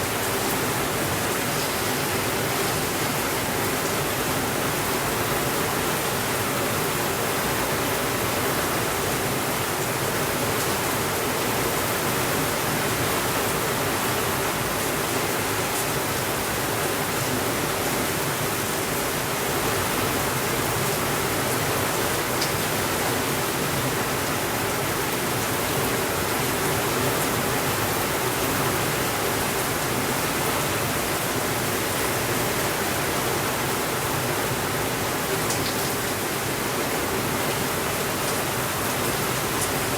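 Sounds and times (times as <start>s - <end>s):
steady rainfall hiss: 0.0s - 39.9s.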